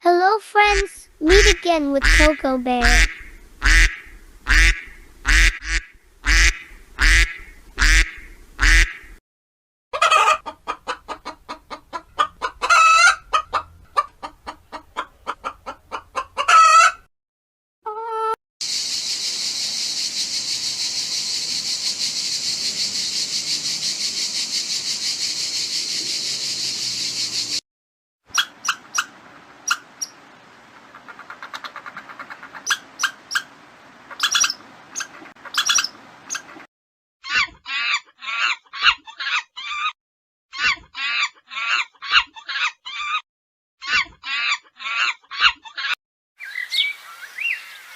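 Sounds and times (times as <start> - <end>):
duck-like calls: 0.6 - 9.2, 30.8 - 36.7
fast chattering calls: 34.1 - 36.5.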